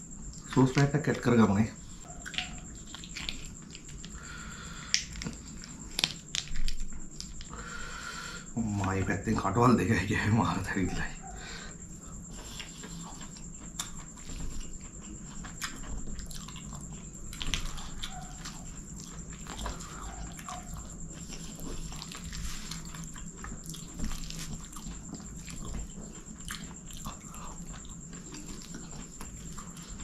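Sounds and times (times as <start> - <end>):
chewing: 1.8 - 7.8, 11.2 - 30.0
wet clicks of fingers in food: 4.8 - 5.3.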